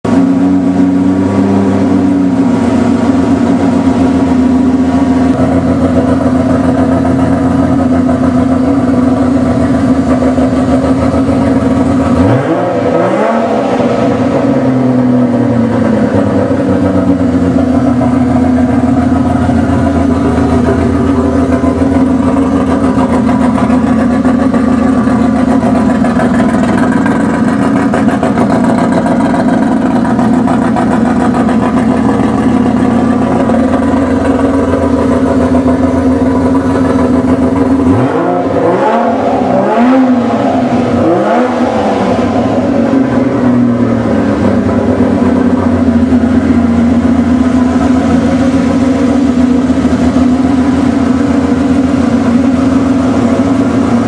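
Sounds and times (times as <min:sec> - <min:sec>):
engine running at raised idle: 0:00.0 - 0:54.0
engine revs rising: 0:11.1 - 0:35.7, 0:36.6 - 0:54.0.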